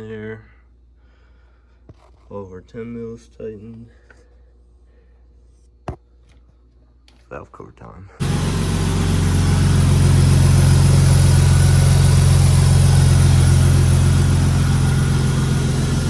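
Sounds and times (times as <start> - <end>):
car engine idling: 8.2 - 16.0.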